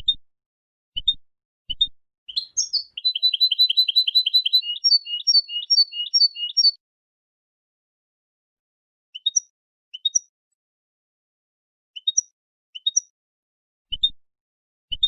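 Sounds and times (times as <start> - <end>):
goldfinch singing: 2.3 - 6.8.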